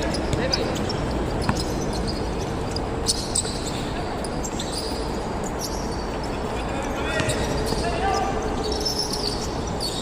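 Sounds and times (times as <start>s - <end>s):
basketball bouncing on court: 0.0s - 2.5s
steady background noise: 0.0s - 10.0s.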